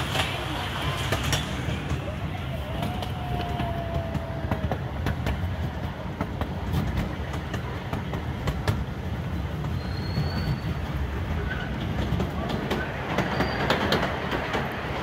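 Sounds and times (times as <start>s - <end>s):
train cars rumbling: 0.0s - 15.0s
wheels clacking over rail joints: 0.0s - 15.0s
faint thin squeal: 9.8s - 10.8s.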